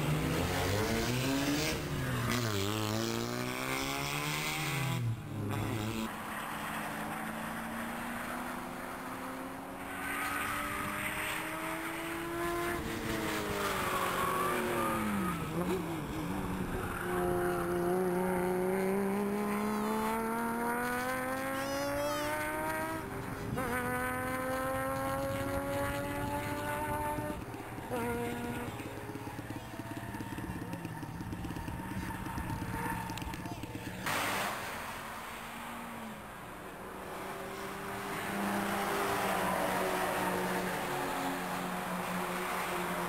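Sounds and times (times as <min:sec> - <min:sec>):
car engine accelerating: 0:00.0 - 0:43.0.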